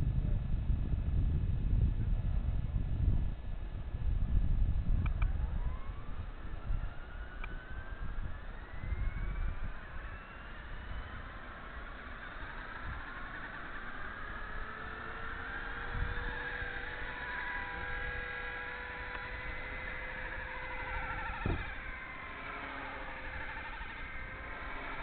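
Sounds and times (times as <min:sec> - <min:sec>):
rc helicopter motors whining: 0:02.2 - 0:25.0
tail motor buzzing: 0:04.9 - 0:25.0
short low thump: 0:21.4 - 0:21.7.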